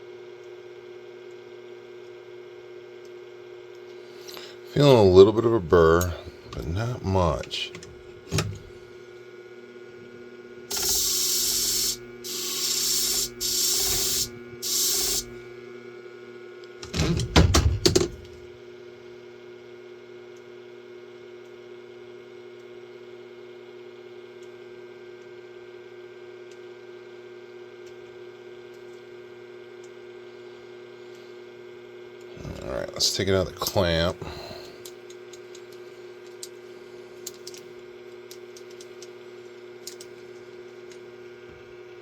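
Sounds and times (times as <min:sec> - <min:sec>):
sharpening machine motor hum: 0:10.7 - 0:15.4.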